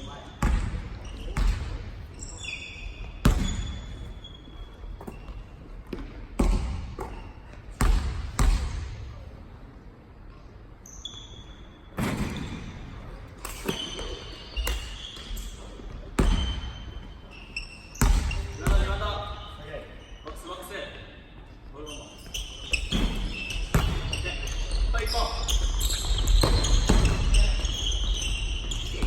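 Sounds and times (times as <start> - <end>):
sneakers squeaking on court: 0.0 - 8.9, 10.8 - 20.6, 21.4 - 29.0
basketball bouncing on gym floor: 0.4 - 2.1, 3.2 - 4.2, 5.0 - 9.1, 16.2 - 16.8, 18.0 - 19.2, 22.7 - 24.8, 25.5 - 29.0.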